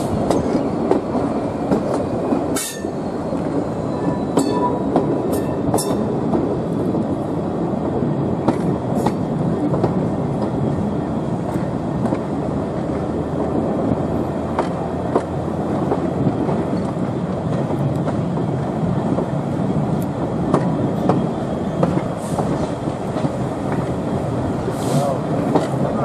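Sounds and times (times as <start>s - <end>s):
train wheels rumbling on rail: 0.0s - 26.0s
sharp track clicks: 8.4s - 24.7s, 25.4s - 26.0s.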